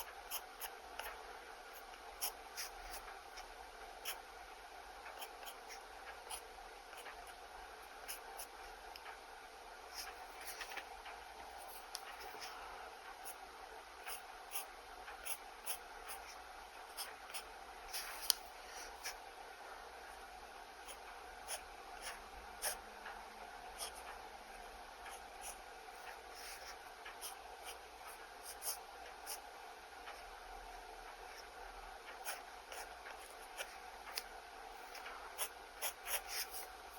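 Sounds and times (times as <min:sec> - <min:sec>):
pen scratching on paper: 0:00.0 - 0:04.2, 0:05.1 - 0:07.4, 0:08.0 - 0:08.6, 0:09.9 - 0:10.9, 0:14.0 - 0:19.2, 0:20.8 - 0:22.8, 0:23.8 - 0:24.1, 0:25.1 - 0:29.4, 0:32.2 - 0:36.7.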